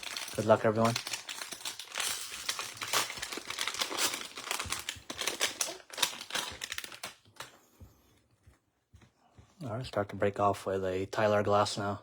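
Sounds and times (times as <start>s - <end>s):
wrapper tearing and crinkling: 0.0s - 7.5s.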